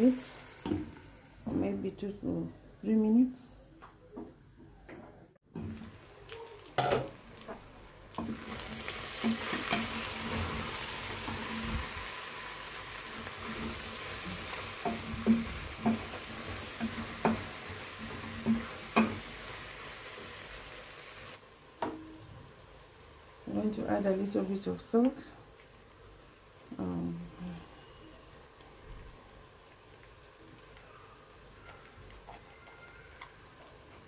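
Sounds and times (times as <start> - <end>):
meat sizzling in a pot: 0.0 - 1.5, 5.5 - 34.0
wooden spoon knocking on pot: 14.8 - 17.6.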